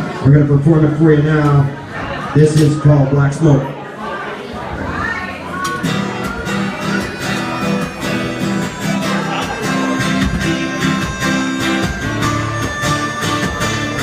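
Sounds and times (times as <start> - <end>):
acoustic guitar strumming: 5.8 - 14.0.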